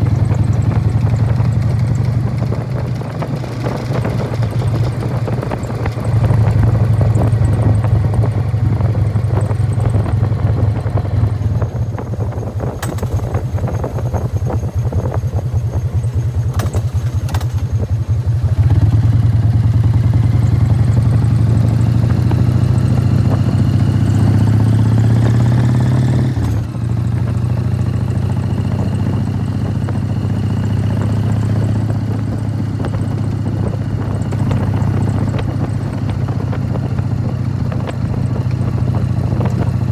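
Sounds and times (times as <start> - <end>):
motorcycle exhaust beat: 0.0 - 39.9
rattling drive clatter: 11.9 - 18.0.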